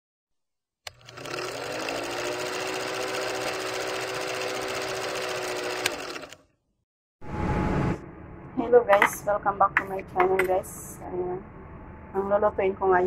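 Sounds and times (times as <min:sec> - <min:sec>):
film projector clatter: 0:00.9 - 0:06.4
projector hum: 0:07.3 - 0:13.0.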